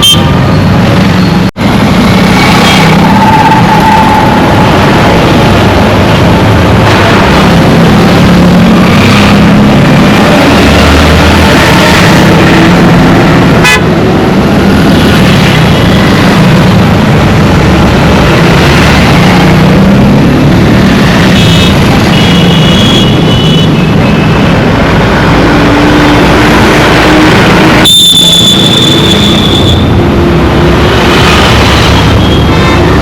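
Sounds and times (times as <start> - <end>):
road traffic noise: 0.0 - 33.0
car horn toots: 13.6 - 13.9, 27.8 - 29.8
loud horn: 13.6 - 14.0, 27.1 - 29.9.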